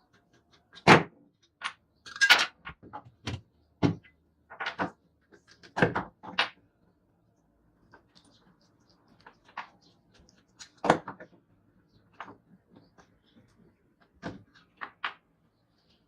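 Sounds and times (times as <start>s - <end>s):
tools and parts clicking and knocking: 0.0s - 6.6s.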